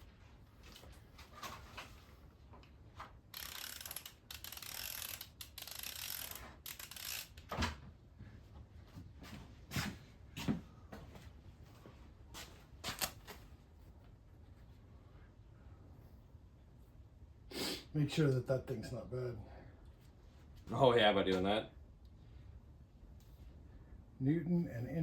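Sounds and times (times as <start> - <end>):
ratchet wrench clicking: 3.3 - 7.5.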